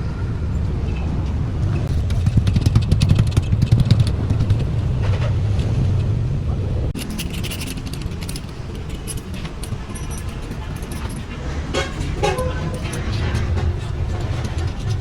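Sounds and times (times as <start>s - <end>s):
engine running: 1.5s - 15.0s
fast clattering rattle: 1.9s - 5.0s, 7.0s - 15.0s.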